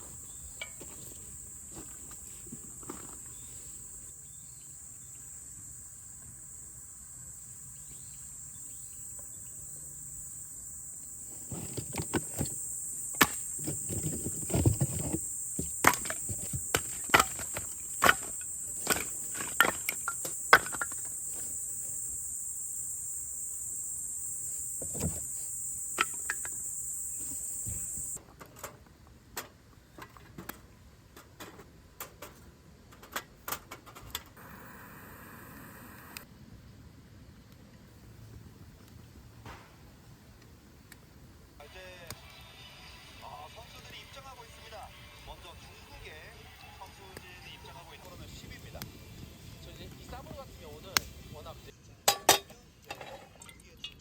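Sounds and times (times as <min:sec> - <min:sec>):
crickets chirping: 0:00.0 - 0:28.2, 0:34.4 - 0:36.3, 0:43.2 - 0:51.8
objects being handled: 0:11.3 - 0:21.6.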